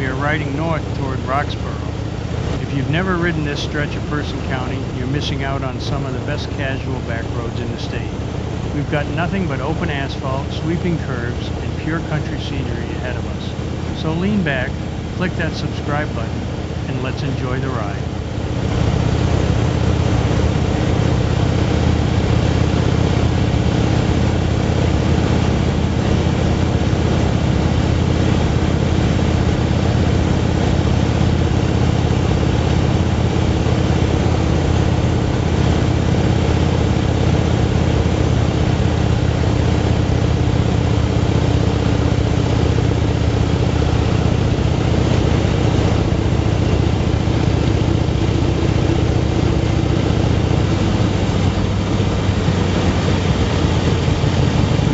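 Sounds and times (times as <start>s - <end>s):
motorcycle engine cruising: 17.8s - 54.9s.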